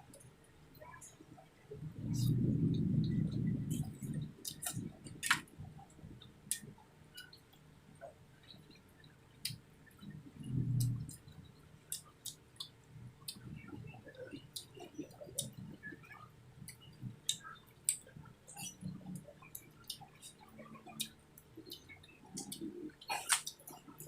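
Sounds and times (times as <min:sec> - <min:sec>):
person chewing: 0:03.7 - 0:05.4, 0:21.0 - 0:24.0.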